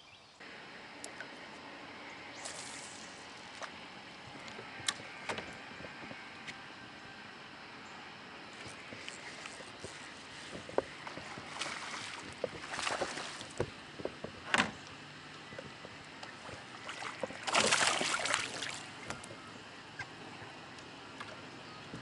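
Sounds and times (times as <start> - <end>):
kayak splashing in water: 8.6 - 14.2, 16.3 - 19.3.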